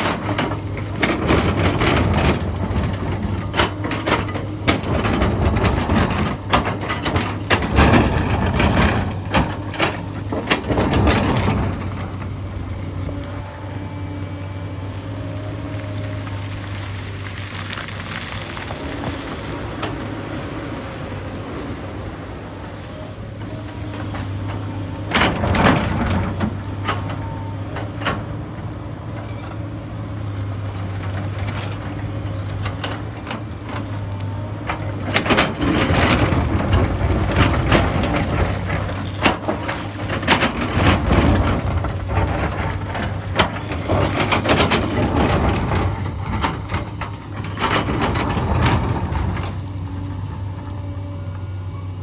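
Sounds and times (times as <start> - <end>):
rock and soil clattering: 0.0 - 13.8, 29.3 - 49.8
excavator diesel engine running: 0.0 - 52.0.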